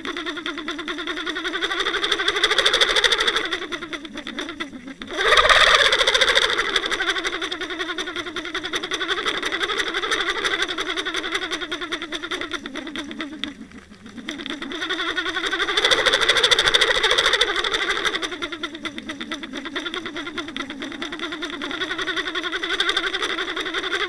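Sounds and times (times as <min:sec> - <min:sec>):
watercraft engine heard underwater: 0:04.9 - 0:08.5.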